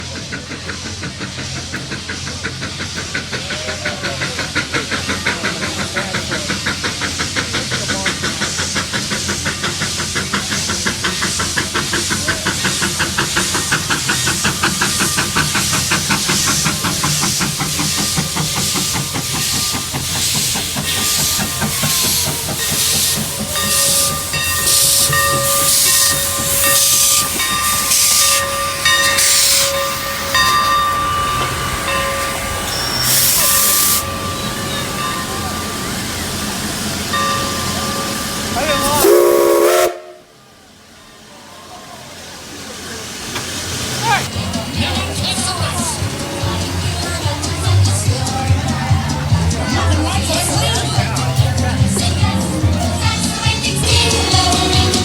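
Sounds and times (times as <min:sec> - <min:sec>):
steam locomotive chuffing: 0:00.0 - 0:55.0
steady high tones: 0:11.6 - 0:39.0, 0:44.0 - 0:55.0.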